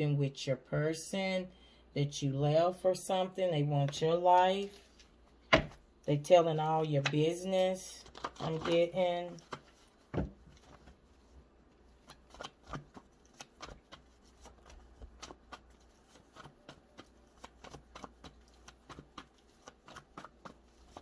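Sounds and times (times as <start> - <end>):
cards being shuffled: 7.0 - 11.0, 12.0 - 21.0.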